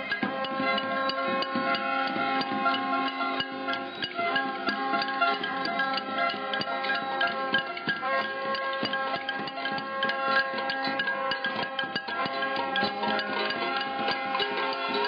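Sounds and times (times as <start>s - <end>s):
ringing bell-like tones: 0.0s - 15.0s
sharp percussive strikes: 0.0s - 15.0s.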